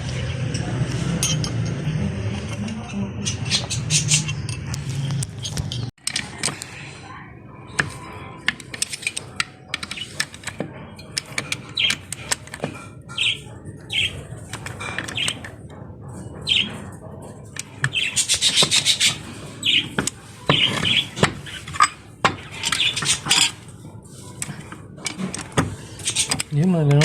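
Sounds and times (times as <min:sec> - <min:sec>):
small birds chirping: 0:13.0 - 0:15.6, 0:16.2 - 0:16.9, 0:17.6 - 0:21.8.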